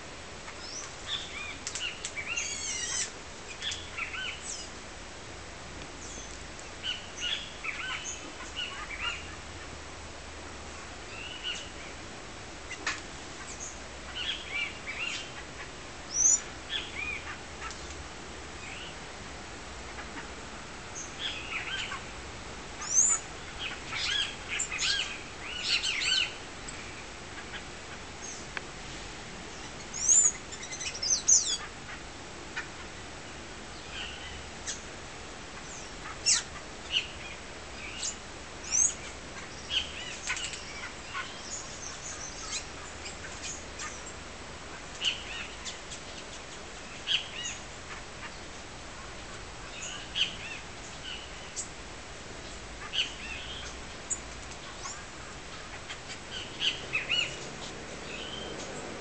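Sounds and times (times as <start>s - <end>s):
birds chirping: 0.5s - 4.8s, 6.0s - 9.8s, 12.6s - 18.0s, 19.9s - 28.6s, 29.5s - 34.9s, 35.5s - 51.8s, 52.4s - 59.0s.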